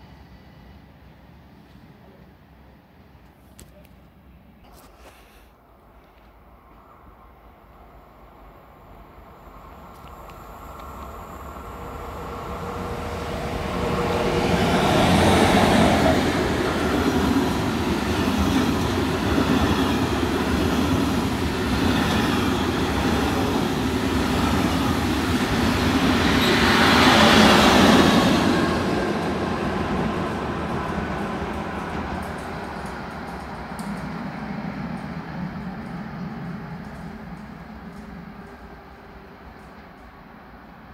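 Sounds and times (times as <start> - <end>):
train wheels rumbling on rails: 9.0 - 40.9.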